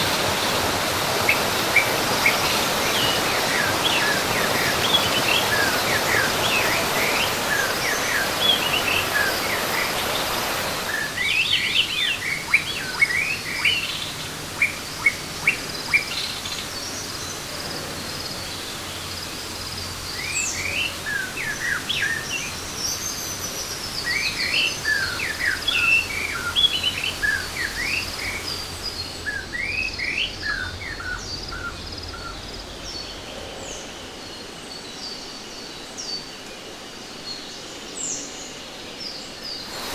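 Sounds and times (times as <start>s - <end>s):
steady rushing hiss: 0.0s - 39.9s
wild birds chirping: 0.0s - 39.9s.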